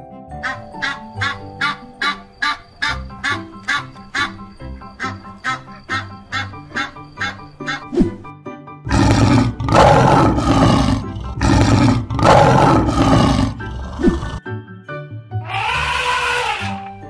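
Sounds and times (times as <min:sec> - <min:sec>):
background music: 0:00.0 - 0:17.0
lion roaring: 0:08.9 - 0:14.4
animal call rising and falling: 0:15.5 - 0:16.8.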